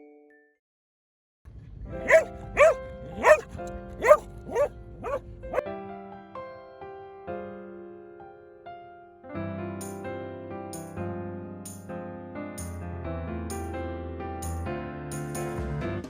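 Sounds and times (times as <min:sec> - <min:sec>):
dog barking: 0:02.0 - 0:05.2.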